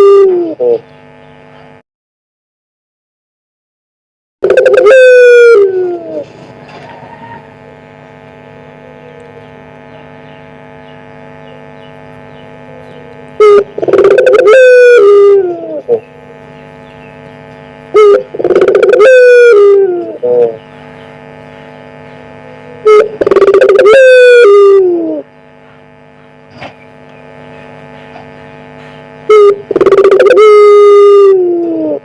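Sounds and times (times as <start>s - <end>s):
dove cooing loudly: 0.0s - 0.8s, 4.4s - 7.5s, 12.7s - 16.1s, 17.9s - 20.6s, 22.6s - 25.3s, 29.3s - 32.0s
steady electrical hum: 0.0s - 1.8s, 4.4s - 32.0s.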